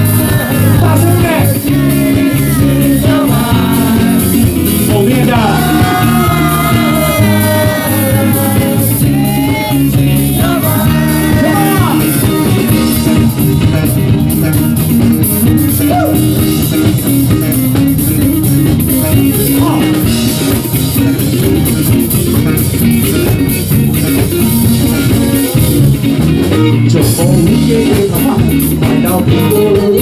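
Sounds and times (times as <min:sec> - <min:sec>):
drum kit beat: 0:00.0 - 0:30.0
electric guitar: 0:00.0 - 0:30.0
live rock band playing: 0:00.0 - 0:30.0.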